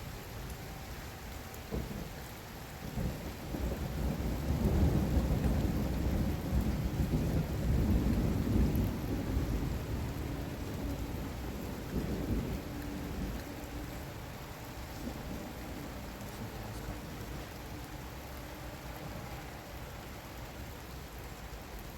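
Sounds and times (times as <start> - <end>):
heavy rain: 0.0 - 21.9
rolling thunder: 2.8 - 18.4.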